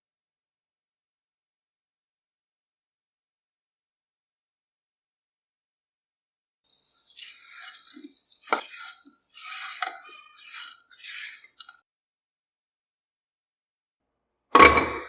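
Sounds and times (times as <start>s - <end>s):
drips: 6.7s - 11.8s.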